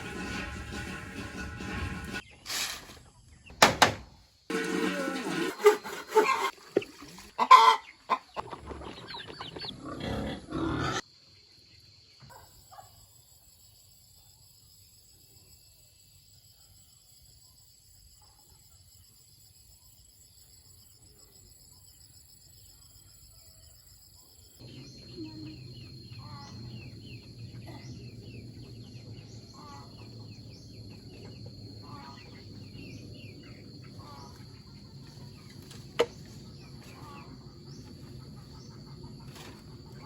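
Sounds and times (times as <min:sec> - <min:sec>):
chickens clucking: 0:04.5 - 0:11.0, 0:24.6 - 0:40.0
farm animals calling: 0:04.5 - 0:11.0, 0:24.6 - 0:40.0.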